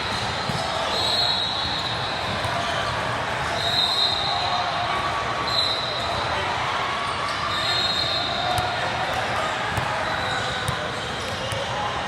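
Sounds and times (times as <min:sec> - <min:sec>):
basketball bouncing on court: 0:00.0 - 0:00.7, 0:08.5 - 0:08.8, 0:09.7 - 0:11.7.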